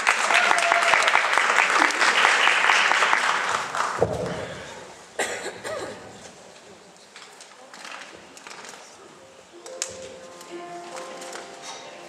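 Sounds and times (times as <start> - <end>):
audience applause: 0.0 - 4.6.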